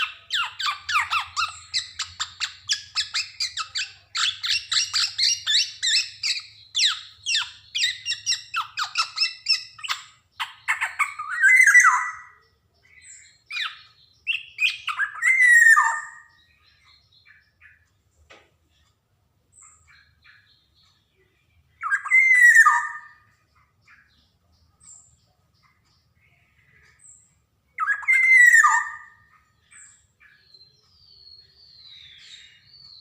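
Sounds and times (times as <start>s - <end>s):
bird harsh scratchy calls: 0.0s - 12.4s.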